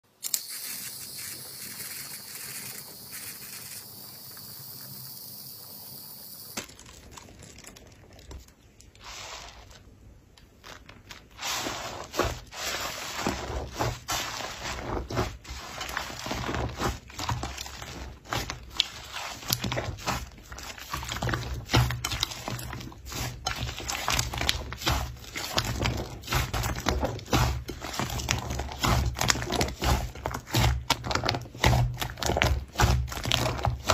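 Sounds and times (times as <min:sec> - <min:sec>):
hiss: 0:00.2 - 0:06.6
slime crackling and popping: 0:06.6 - 0:09.0, 0:14.7 - 0:33.9.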